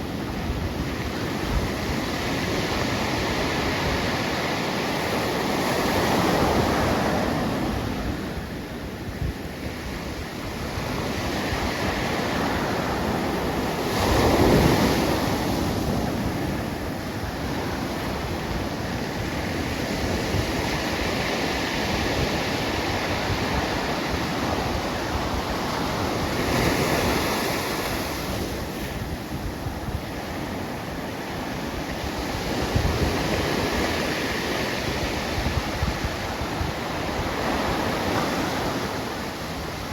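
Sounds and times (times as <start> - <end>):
wind buffeting microphone: 0.0 - 39.9
ocean waves breaking: 10.0 - 39.9.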